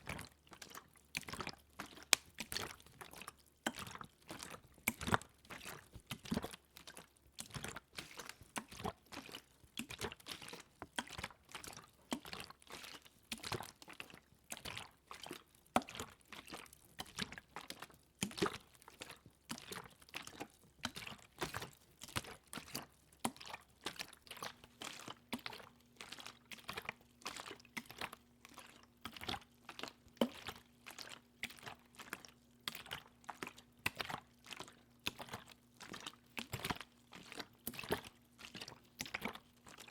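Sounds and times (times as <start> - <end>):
wet clicks and water splashes: 0.0 - 39.9.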